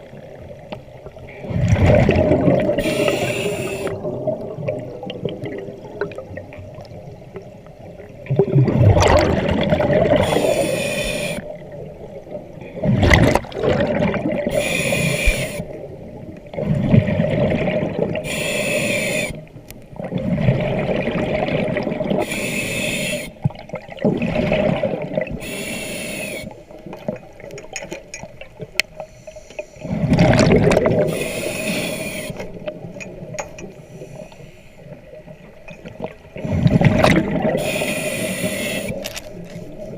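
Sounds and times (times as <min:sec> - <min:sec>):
exhaled bubbles gushing: 0:01.1 - 0:18.3, 0:20.0 - 0:22.3, 0:23.4 - 0:25.5, 0:29.8 - 0:31.6, 0:35.8 - 0:39.2
diver inhaling through regulator: 0:02.7 - 0:04.1, 0:10.1 - 0:11.5, 0:14.5 - 0:15.7, 0:18.2 - 0:19.4, 0:22.2 - 0:23.4, 0:25.4 - 0:26.6, 0:31.0 - 0:32.5, 0:37.6 - 0:39.1.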